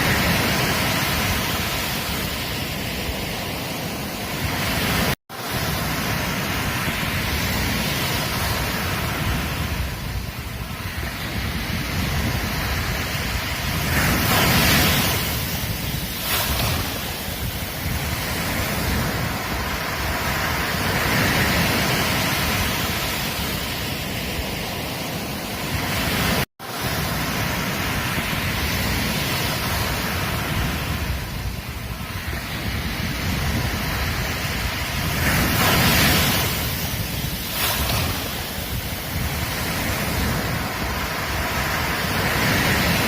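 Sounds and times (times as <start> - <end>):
ocean waves washing up beach: 0.0 - 43.0.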